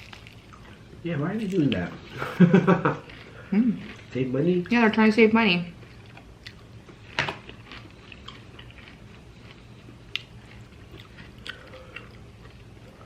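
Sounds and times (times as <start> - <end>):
crunchy bite: 0.0 - 0.8
person chewing: 0.0 - 4.9, 5.8 - 13.0
faint low hum: 0.0 - 13.0.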